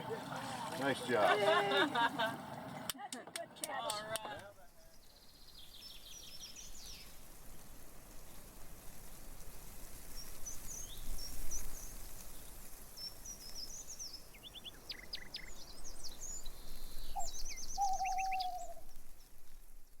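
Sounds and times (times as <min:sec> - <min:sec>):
steady background hiss: 0:00.0 - 0:19.9
high bird chirps: 0:13.4 - 0:18.8.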